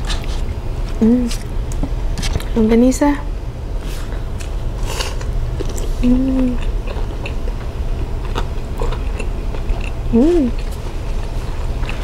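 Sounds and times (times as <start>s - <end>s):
steady low hum: 0.0s - 12.0s
people biting and chewing: 4.4s - 12.0s
person humming mmm: 6.0s - 6.7s, 10.1s - 10.6s.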